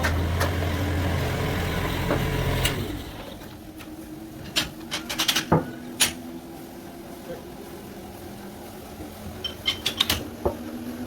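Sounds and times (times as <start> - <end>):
sawmill machine humming: 0.0 - 3.8.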